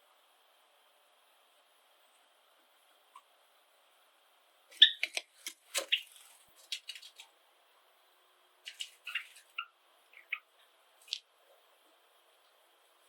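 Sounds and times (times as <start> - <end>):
sparrows chirping and clicking: 4.7 - 7.3, 8.6 - 11.2.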